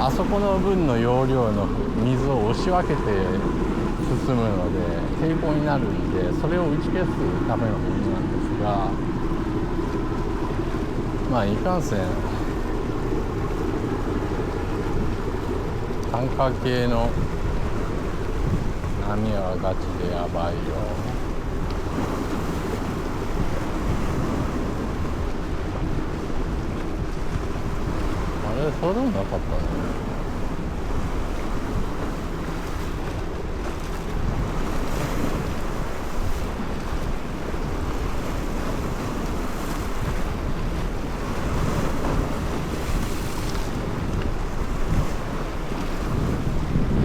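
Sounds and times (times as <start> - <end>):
seawater washing: 0.0 - 47.0
wind buffeting microphone: 0.0 - 47.0.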